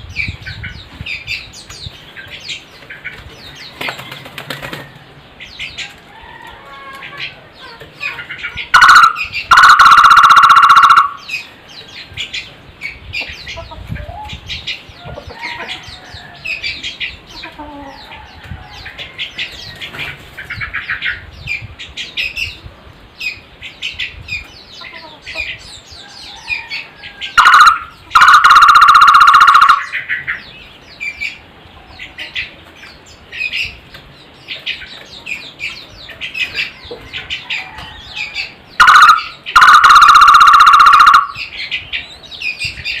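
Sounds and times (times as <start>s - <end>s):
small birds chirping softly: 0.0s - 9.8s, 10.9s - 28.5s, 29.4s - 40.0s, 41.2s - 43.0s
barbet rapid trill call: 8.8s - 11.3s, 27.4s - 30.0s, 38.8s - 41.4s.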